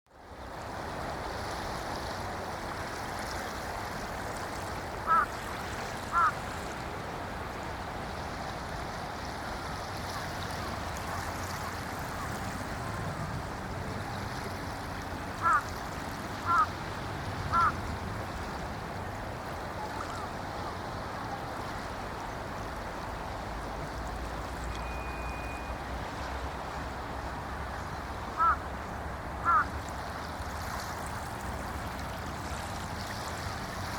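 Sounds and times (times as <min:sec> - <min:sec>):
small waves lapping on beach: 0:00.1 - 0:33.9
bird calling loudly: 0:06.1 - 0:06.3, 0:15.4 - 0:15.6, 0:16.4 - 0:16.7, 0:17.5 - 0:17.8, 0:28.4 - 0:28.6, 0:29.4 - 0:29.7.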